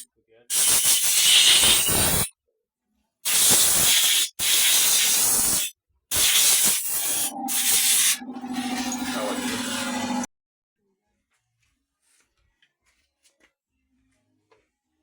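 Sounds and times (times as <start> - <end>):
loud spray hissing: 0.5 - 2.3, 3.3 - 8.2
low hum: 7.0 - 10.3.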